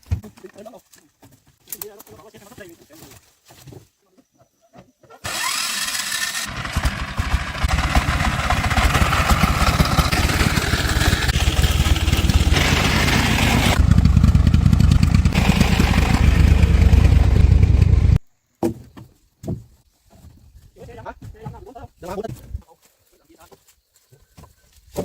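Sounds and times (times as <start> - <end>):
engine cranking and starting: 5.2 - 18.2.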